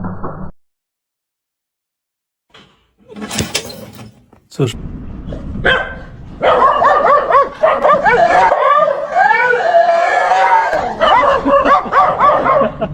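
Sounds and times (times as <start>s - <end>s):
dogs barking and yipping: 5.6s - 12.9s
dogs howling: 6.4s - 12.8s.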